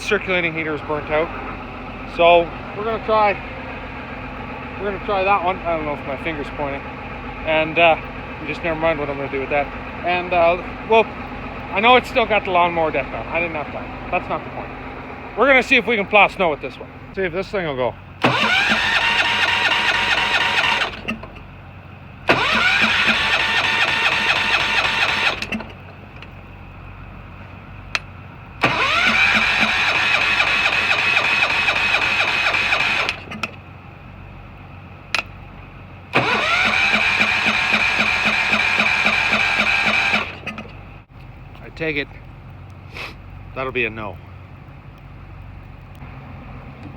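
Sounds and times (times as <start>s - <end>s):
electric starter cranking engine: 18.2s - 21.5s, 22.2s - 26.3s, 28.6s - 33.6s, 36.1s - 40.9s.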